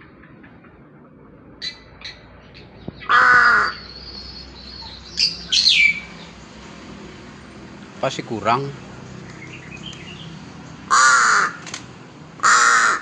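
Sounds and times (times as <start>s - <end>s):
bird cawing harshly: 3.0s - 4.1s, 10.9s - 11.7s, 12.4s - 13.0s.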